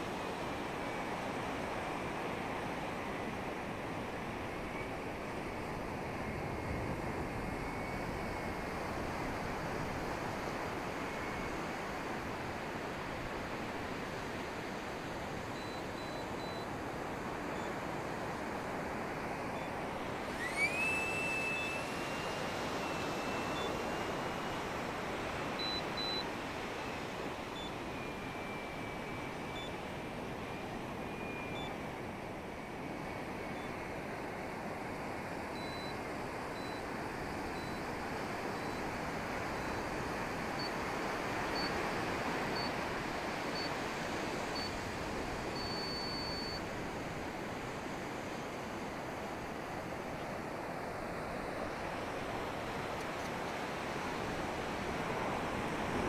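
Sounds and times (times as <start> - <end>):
electric ducted fan whine: 0.0 - 56.0
short high beeps: 25.6 - 26.2, 35.6 - 35.9, 45.6 - 46.6
steady rush of air: 46.6 - 56.0.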